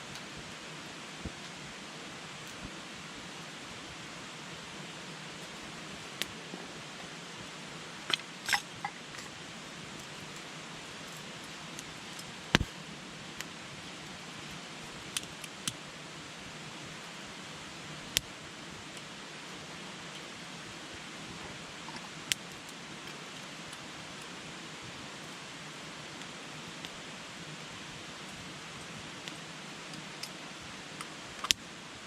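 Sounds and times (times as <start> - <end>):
campfire crackling and popping: 5.2 - 15.8, 21.0 - 24.4, 28.2 - 31.7.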